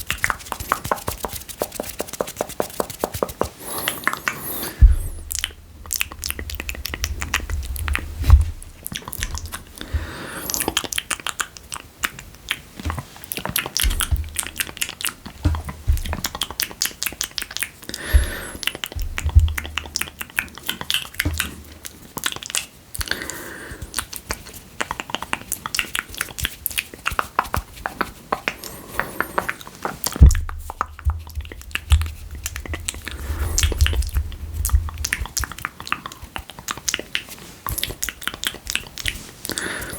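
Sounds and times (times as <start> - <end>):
wet mouth clicks and smacks: 0.0 - 39.9
low thumps: 4.8 - 10.2, 13.8 - 16.6, 17.9 - 20.3, 30.2 - 35.6.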